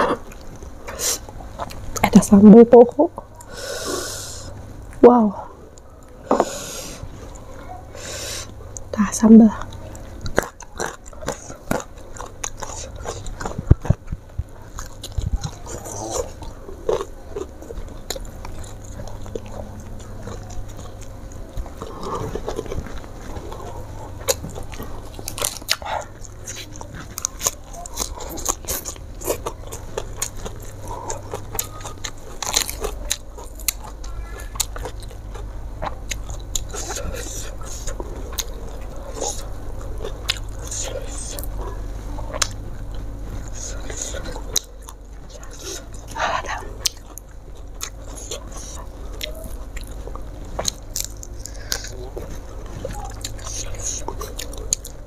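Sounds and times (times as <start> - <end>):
person chewing and crunching food: 0.0 - 55.0
lettuce leaves rustling and tearing: 21.6 - 30.6.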